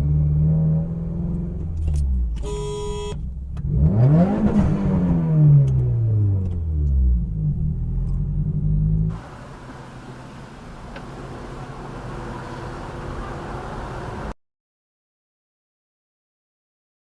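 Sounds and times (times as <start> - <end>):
car horn honk: 2.4 - 3.2
traffic engine hum: 3.2 - 14.4
engine revving: 3.5 - 10.2.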